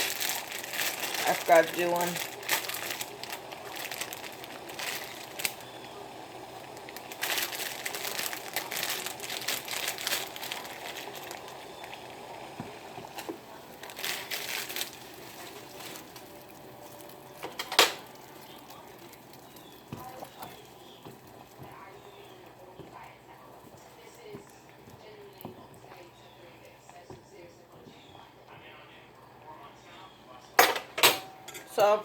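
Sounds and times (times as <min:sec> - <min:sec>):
crinkling and crackling handling: 0:00.0 - 0:29.4
pot of water boiling: 0:00.0 - 0:32.0.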